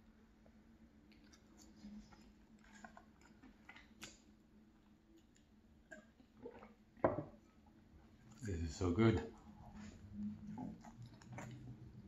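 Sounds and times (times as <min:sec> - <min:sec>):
quiet chewing: 0:00.4 - 0:06.8, 0:09.2 - 0:12.0.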